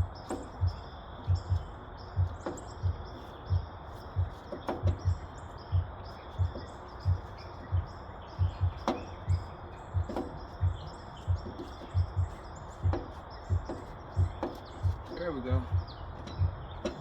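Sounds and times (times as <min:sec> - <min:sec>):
birds chirping: 0:00.0 - 0:17.0
regular low thudding: 0:00.0 - 0:17.0.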